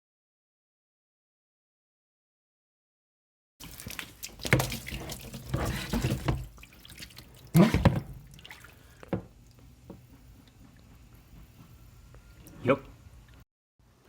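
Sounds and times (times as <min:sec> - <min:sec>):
water splashing and sloshing: 0:03.6 - 0:11.0.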